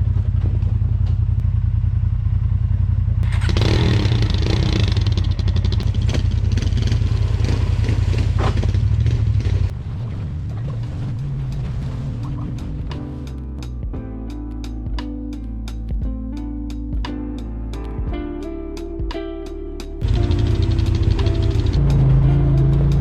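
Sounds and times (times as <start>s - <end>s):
off-road vehicle engine running: 0.0s - 14.0s, 20.0s - 23.0s
rushing rattling noise: 3.2s - 13.4s, 20.0s - 23.0s.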